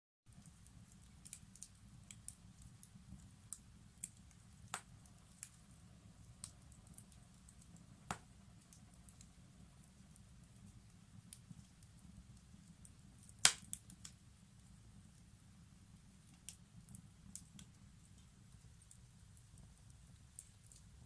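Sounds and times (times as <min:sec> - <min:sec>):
wood fire crackling: 0:00.3 - 0:21.0
fire pops: 0:13.2 - 0:14.2.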